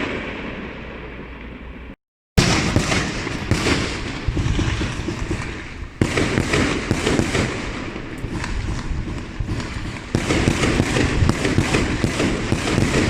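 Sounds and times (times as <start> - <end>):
loud firework bursts: 0.0 - 1.8, 2.4 - 13.0
fireworks crackling bangs: 0.0 - 13.0.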